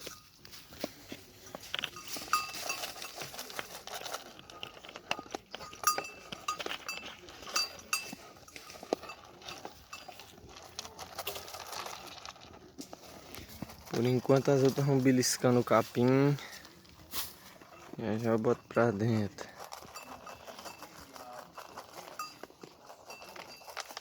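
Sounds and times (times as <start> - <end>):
sheep crunching corn: 0.0 - 24.0
metallic clinks: 1.8 - 3.3, 4.6 - 10.3.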